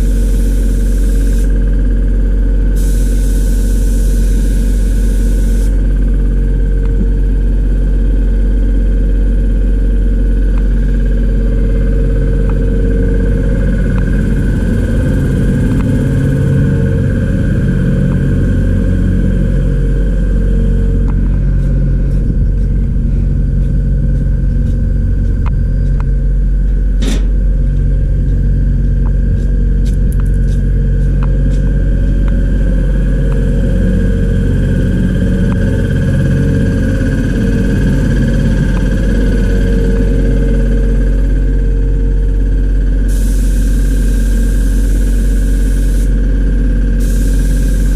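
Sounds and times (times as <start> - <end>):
motor humming: 0.0 - 8.0, 9.0 - 47.9
sharp click: 27.0 - 27.5.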